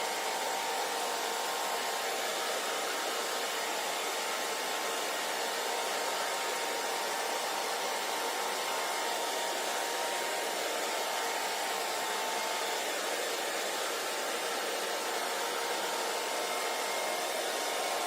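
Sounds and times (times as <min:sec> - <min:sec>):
hair dryer blowing air: 0:00.0 - 0:18.0.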